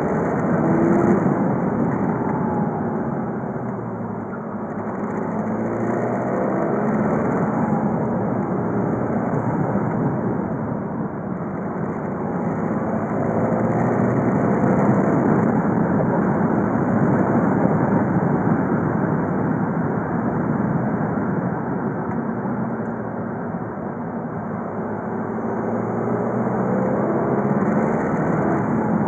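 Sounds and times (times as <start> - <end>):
diesel car engine running: 0.0 - 22.0
tyre and road noise: 0.0 - 29.0.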